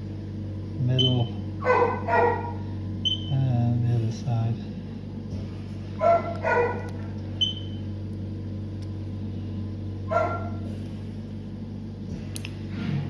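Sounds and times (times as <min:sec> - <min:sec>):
steady electrical hum: 0:00.0 - 0:13.0
dog barking: 0:01.6 - 0:02.7, 0:06.0 - 0:07.2, 0:10.1 - 0:10.7.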